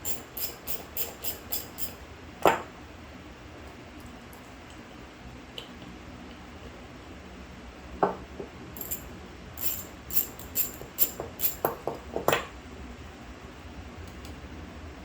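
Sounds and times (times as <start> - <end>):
light metallic clinks: 0.0 - 2.0, 8.8 - 11.7
low steady background noise: 0.0 - 15.0.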